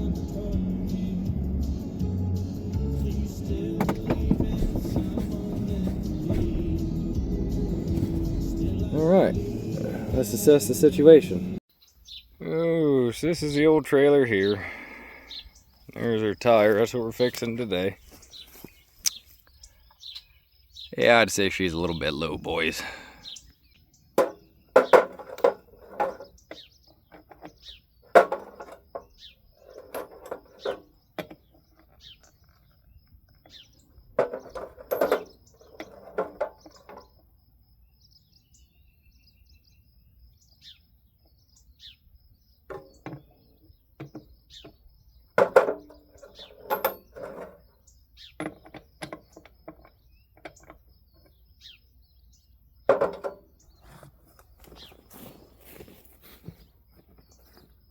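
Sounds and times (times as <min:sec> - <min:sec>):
birds chirping: 0:00.0 - 0:57.9
knocks and clatter: 0:03.6 - 0:06.9, 0:24.2 - 0:29.1, 0:34.2 - 0:37.1, 0:45.4 - 0:47.6, 0:52.9 - 0:53.5.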